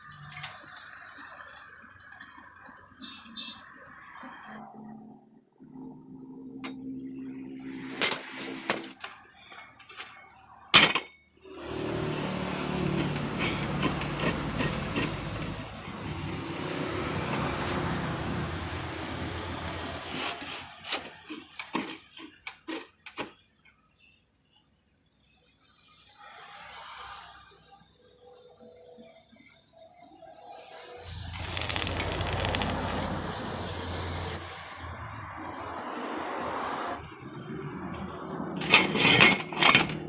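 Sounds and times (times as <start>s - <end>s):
arc welding crackle: 30.6s - 34.4s.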